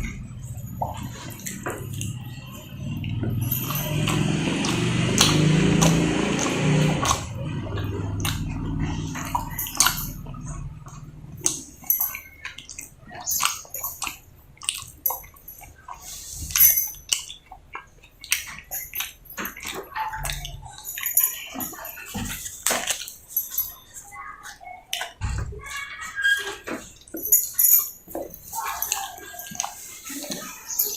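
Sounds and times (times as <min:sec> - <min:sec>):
wet chewing and lip smacking: 0:03.9 - 0:23.8.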